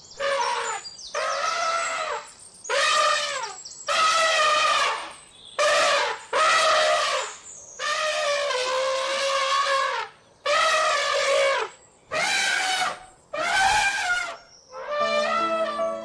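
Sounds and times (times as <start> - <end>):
elephant trumpeting: 0.2 - 16.0
music with held notes: 15.0 - 16.0.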